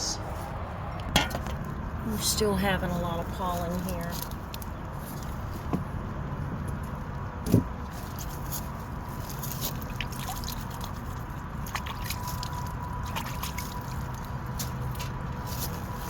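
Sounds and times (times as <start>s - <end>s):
drops dripping and ticking: 9.2s - 15.3s.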